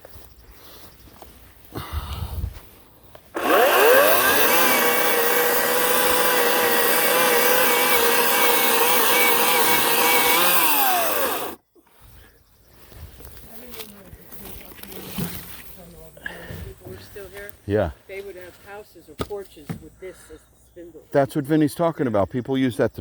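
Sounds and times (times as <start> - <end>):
electric chainsaw motor whining: 3.3 - 11.6.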